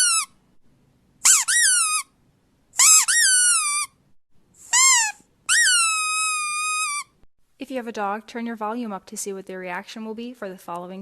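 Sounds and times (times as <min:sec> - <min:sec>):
squeaky dog toy squeaks: 0:00.0 - 0:00.4, 0:01.2 - 0:02.2, 0:02.8 - 0:04.0, 0:04.6 - 0:07.2.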